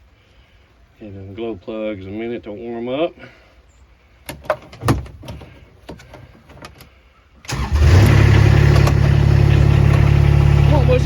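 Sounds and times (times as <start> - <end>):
diesel engine starting and idling: 7.5 - 11.0.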